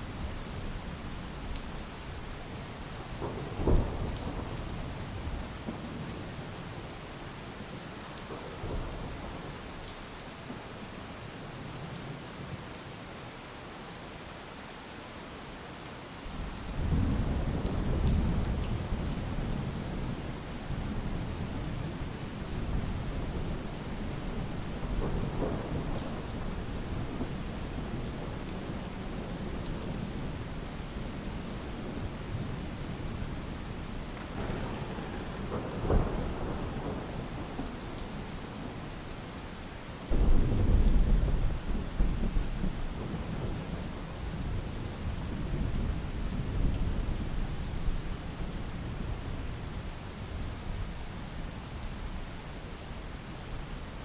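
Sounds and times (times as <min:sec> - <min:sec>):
heavy rain: 0:00.0 - 0:54.0
thunder rumbling: 0:22.6 - 0:30.4, 0:34.2 - 0:38.8, 0:40.1 - 0:47.2
thunder crack: 0:34.2 - 0:37.7.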